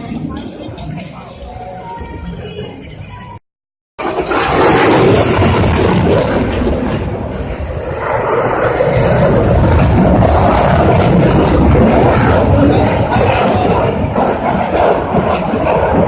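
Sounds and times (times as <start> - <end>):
jet engine roar: 4.0 - 16.0.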